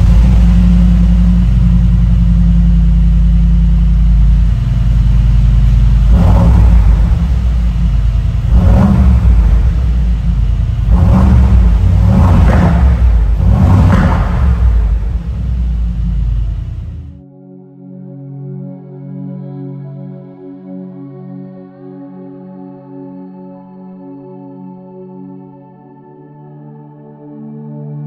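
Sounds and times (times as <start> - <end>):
car engine idling and revving: 0.0 - 17.2.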